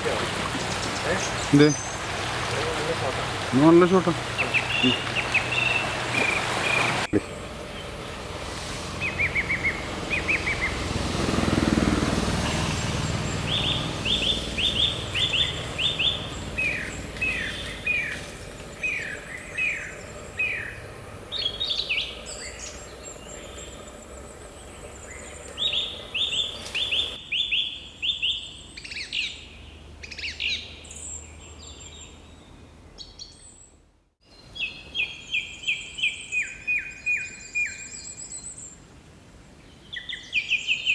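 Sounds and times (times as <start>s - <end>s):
higher bird calls: 0.0s - 8.2s, 9.0s - 10.8s, 12.4s - 27.2s
birds whistling falling notes: 0.0s - 10.9s, 12.4s - 23.9s.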